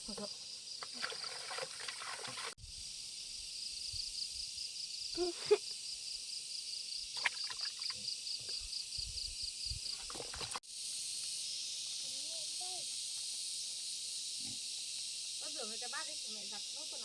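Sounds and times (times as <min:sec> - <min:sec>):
steady high hiss: 0:10.7 - 0:17.0.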